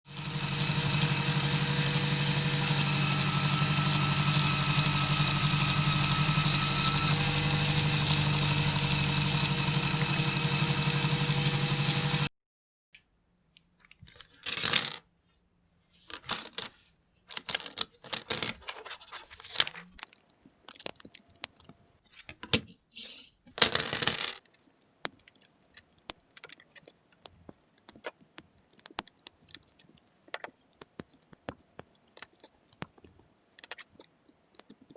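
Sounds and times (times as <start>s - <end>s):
small electric motor humming: 0.1s - 12.3s
plastic bricks clicking together: 17.3s - 22.0s, 23.6s - 34.9s.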